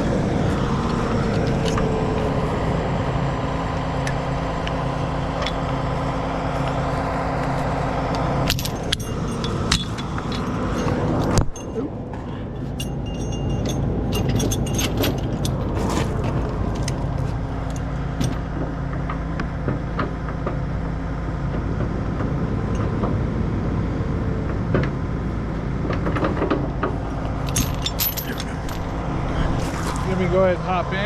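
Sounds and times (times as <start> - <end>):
diesel truck engine idling: 0.0 - 31.0
metal chain clinks and rattles: 8.4 - 11.9, 12.6 - 17.0, 27.4 - 29.0.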